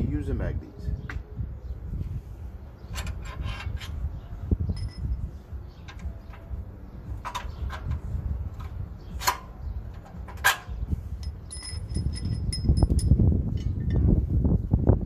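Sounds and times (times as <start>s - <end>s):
metal tools clinking and knocking: 4.7s - 5.2s, 8.6s - 14.1s
ringing metal ticks: 11.2s - 14.0s.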